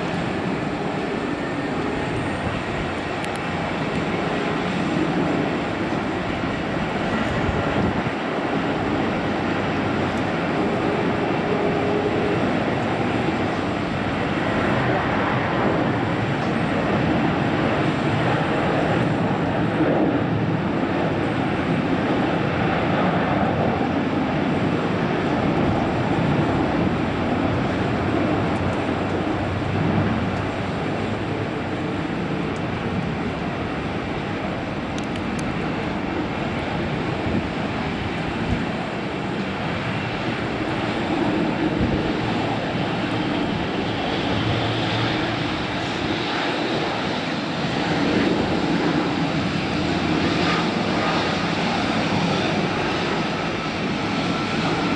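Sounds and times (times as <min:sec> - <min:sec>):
jet engines roaring: 0:00.0 - 0:54.9.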